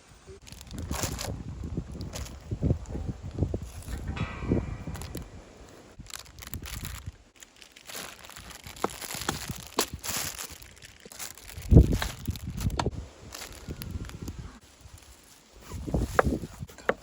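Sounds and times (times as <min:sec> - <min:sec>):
packaging crinkling and rustling: 0:00.4 - 0:02.5, 0:06.0 - 0:16.5
heavy thump: 0:03.8 - 0:07.0.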